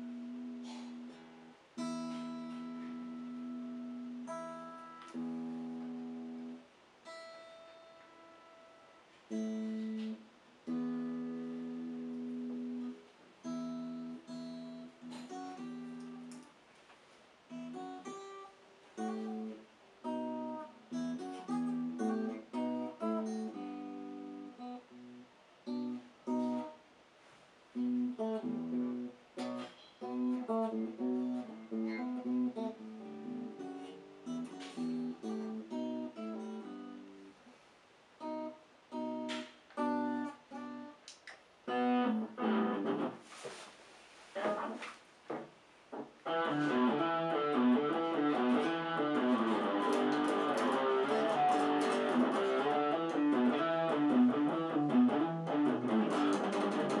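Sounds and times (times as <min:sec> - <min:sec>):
solo guitar playing: 0:00.0 - 0:16.5, 0:17.5 - 0:26.8, 0:27.8 - 0:37.4, 0:38.2 - 0:41.0, 0:41.6 - 0:43.2, 0:46.2 - 0:57.0.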